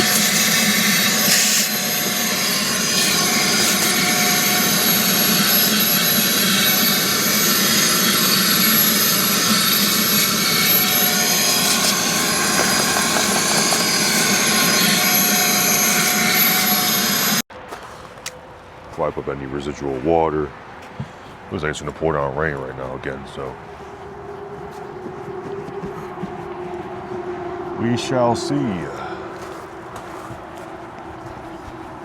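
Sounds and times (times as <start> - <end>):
electric motor whine: 0.0 - 17.4.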